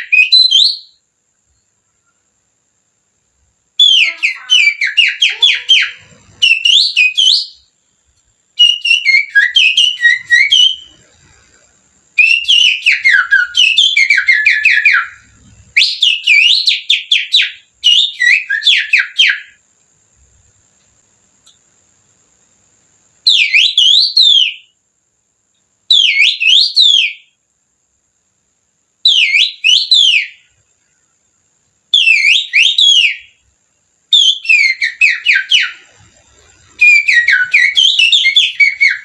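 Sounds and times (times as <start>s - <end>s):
person whistling birdsong: 3.8s - 7.7s, 8.6s - 11.0s, 12.2s - 19.4s, 36.7s - 39.0s.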